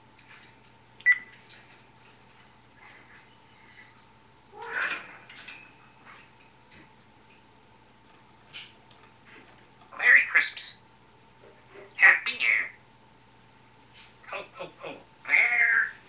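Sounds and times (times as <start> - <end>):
parrot whistle: 1.0 - 1.3.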